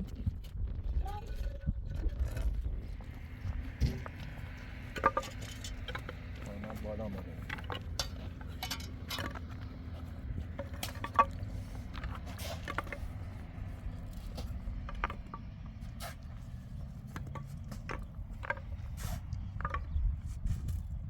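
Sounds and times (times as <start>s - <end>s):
scattered clicks and knocks: 2.2s - 13.6s, 14.5s - 15.8s, 17.1s - 18.8s.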